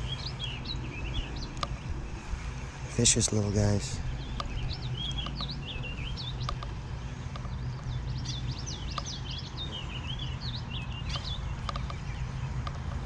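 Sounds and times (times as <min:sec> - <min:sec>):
blackbirds calling: 0:00.0 - 0:13.0
low hum: 0:00.0 - 0:13.0
faint clicks: 0:01.5 - 0:01.8, 0:06.4 - 0:08.0, 0:08.9 - 0:09.2, 0:11.1 - 0:13.0.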